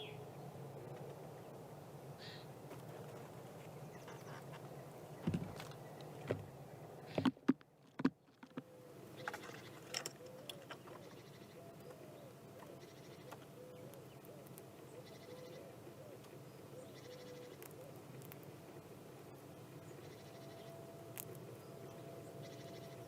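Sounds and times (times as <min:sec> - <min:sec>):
sharp knocks and clicks: 0:05.2 - 0:06.5, 0:07.1 - 0:08.6.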